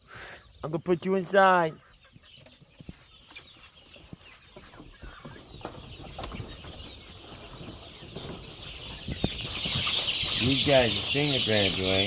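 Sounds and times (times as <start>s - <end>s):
chickens clucking softly: 0.1s - 12.0s.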